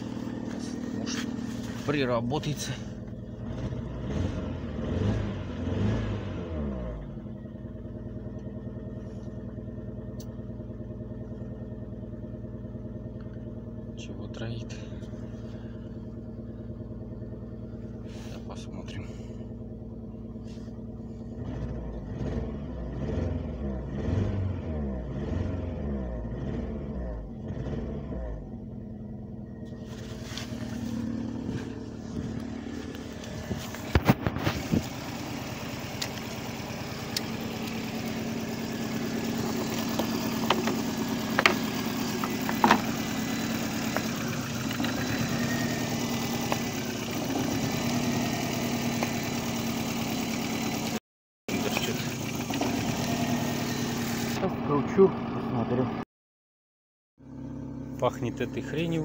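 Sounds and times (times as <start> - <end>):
car engine idling roughly: 0.0 - 3.5, 7.4 - 21.4, 28.7 - 56.0.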